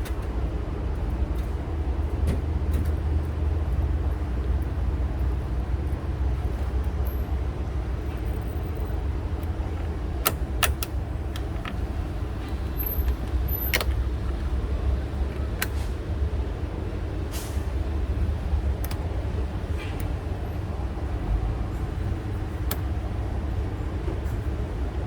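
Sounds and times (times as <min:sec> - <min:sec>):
hand tools clicking and tapping: 0:09.4 - 0:11.9.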